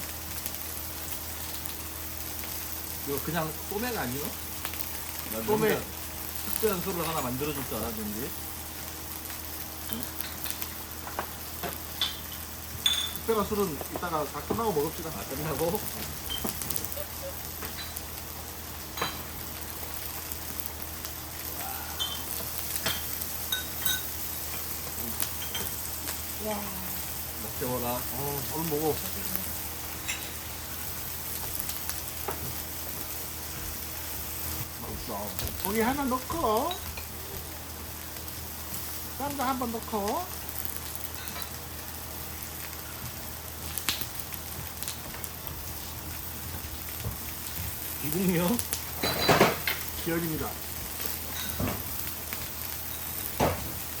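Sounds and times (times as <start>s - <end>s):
meat sizzling on a griddle: 0.0s - 54.0s
tongs clicking and clinking: 17.6s - 18.1s, 22.0s - 25.8s, 30.0s - 30.4s.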